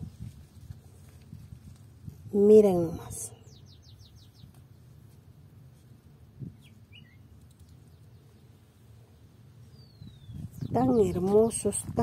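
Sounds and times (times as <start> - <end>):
low outdoor background: 0.0 - 12.0
faint bird chirps: 3.3 - 5.0, 5.8 - 11.3.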